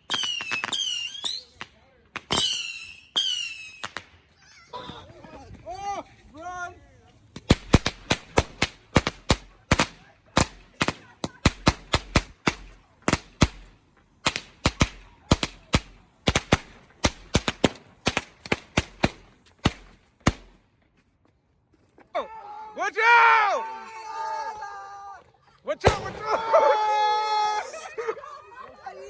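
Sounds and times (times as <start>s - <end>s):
fireworks bangs with echo: 0.1s - 4.1s, 7.4s - 20.6s, 25.8s - 26.9s.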